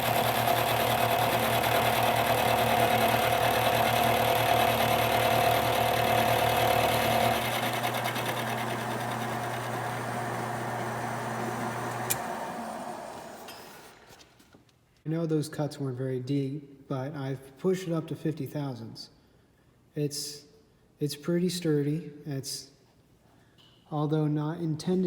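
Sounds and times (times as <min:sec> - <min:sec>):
milling machine humming: 0:00.0 - 0:13.9.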